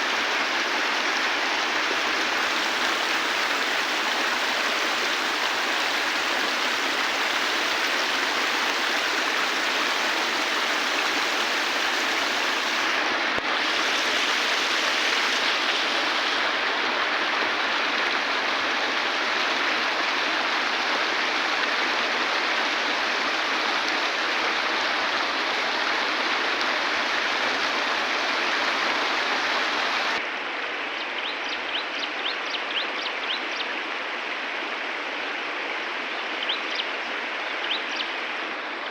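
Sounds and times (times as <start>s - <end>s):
river water rushing: 0.0s - 30.8s.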